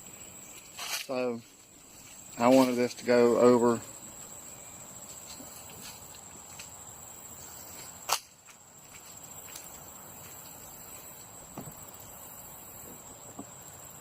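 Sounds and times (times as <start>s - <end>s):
crickets chirring: 0.0s - 14.0s
faint knocks: 11.5s - 11.9s.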